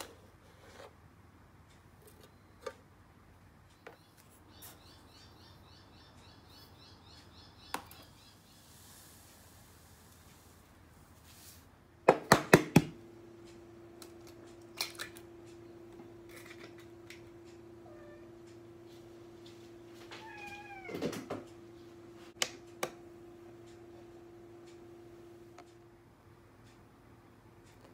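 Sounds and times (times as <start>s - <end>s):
low hum: 13.0s - 26.4s
cat meowing: 20.1s - 21.2s.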